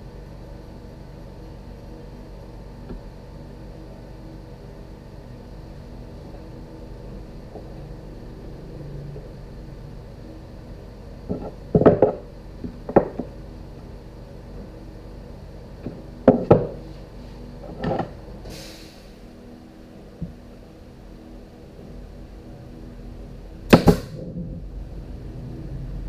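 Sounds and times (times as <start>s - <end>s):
low steady hum: 0.0s - 26.0s
hard objects knocking and clattering: 11.3s - 13.3s.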